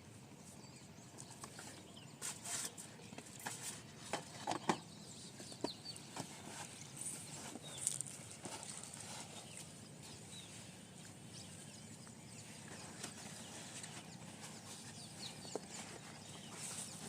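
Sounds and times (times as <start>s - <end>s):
steady low hum: 0.0s - 17.0s
bird chirps: 4.6s - 17.0s.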